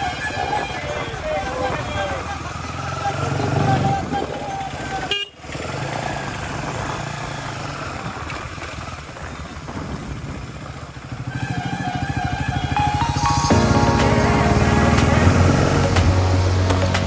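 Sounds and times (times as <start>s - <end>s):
music: 12.8s - 17.0s.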